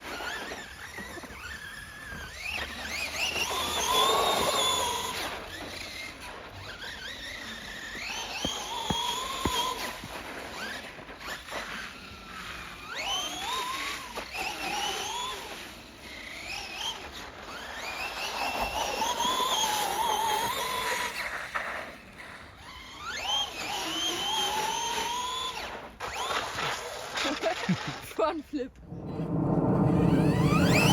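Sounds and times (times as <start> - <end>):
rc truck motor whining: 0.0 - 28.0, 28.8 - 30.9.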